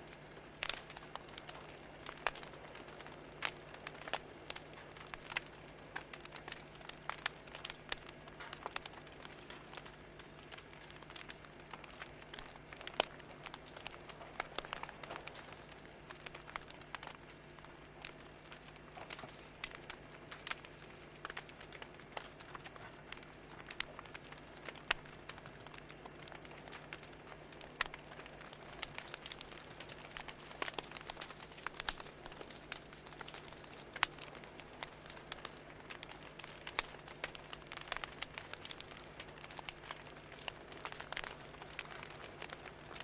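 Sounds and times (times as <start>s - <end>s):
fire crackling: 0.0s - 43.0s.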